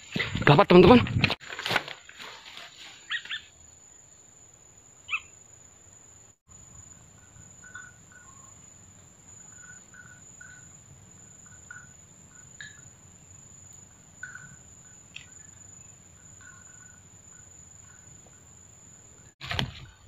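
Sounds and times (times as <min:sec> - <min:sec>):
high-pitched insect drone: 0:06.5 - 0:19.4.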